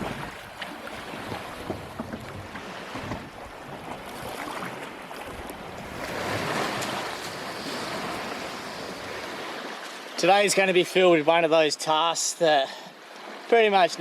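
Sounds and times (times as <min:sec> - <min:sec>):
waves washing: 0:00.0 - 0:14.0.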